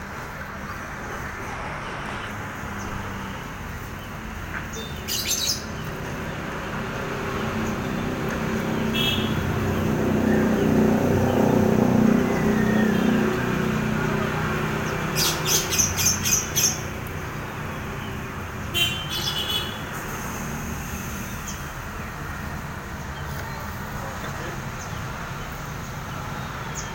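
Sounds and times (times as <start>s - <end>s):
bird chirping: 2.2s - 13.8s, 14.5s - 18.4s
vehicle engine rumble passing: 5.6s - 18.7s.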